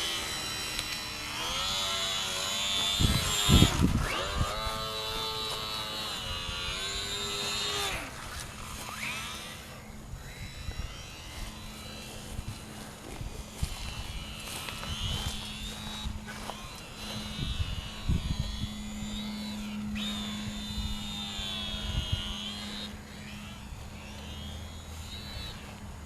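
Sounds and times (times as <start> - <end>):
model airplane motor whine: 0.0 - 26.0
steady low hum: 0.0 - 26.0
wind rumble on microphone: 2.9 - 7.3, 12.2 - 22.4.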